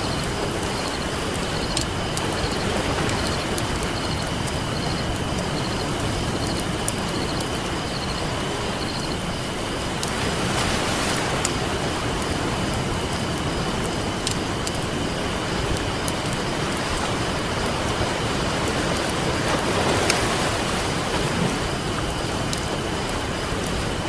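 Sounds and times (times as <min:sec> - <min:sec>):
campfire crackling and popping: 0:00.0 - 0:24.0
ocean surf rushing: 0:00.0 - 0:24.0.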